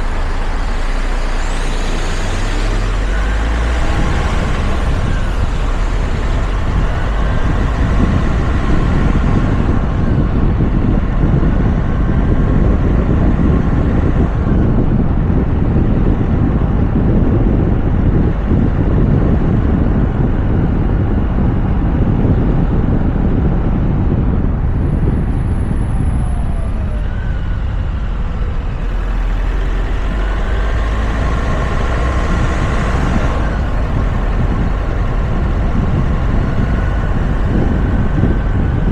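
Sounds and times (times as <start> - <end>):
faint whining tones: 0.0 - 11.6.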